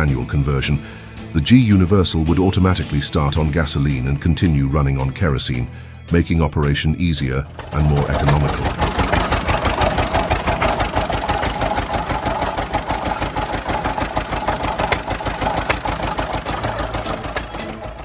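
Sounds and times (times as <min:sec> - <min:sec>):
tractor engine running: 0:07.4 - 0:18.0.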